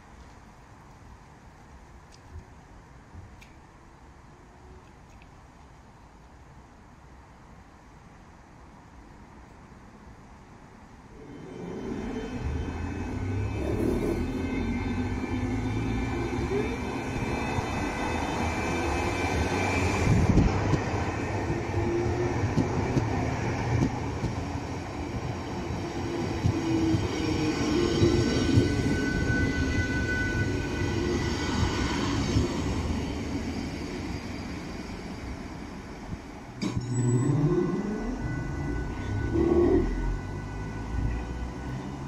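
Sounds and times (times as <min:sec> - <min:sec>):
train motor whine: 0:11.2 - 0:21.8, 0:36.1 - 0:42.0
train wheels rumbling on rails: 0:11.2 - 0:42.0
wheel squeal: 0:27.5 - 0:32.0, 0:36.6 - 0:38.0.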